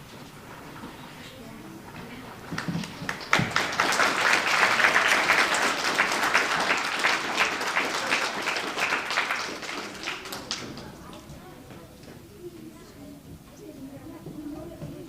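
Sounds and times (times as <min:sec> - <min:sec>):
audience applauding: 0:02.5 - 0:11.2.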